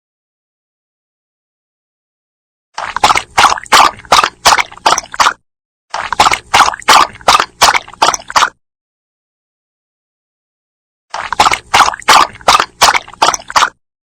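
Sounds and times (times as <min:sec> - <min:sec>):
dog lapping water: 0:02.8 - 0:08.6, 0:11.1 - 0:13.8.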